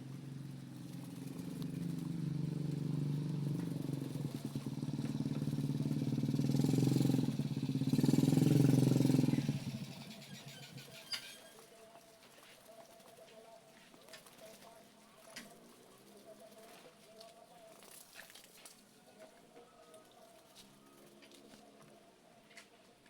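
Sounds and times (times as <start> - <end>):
motorcycle passing by: 0.0 - 11.6.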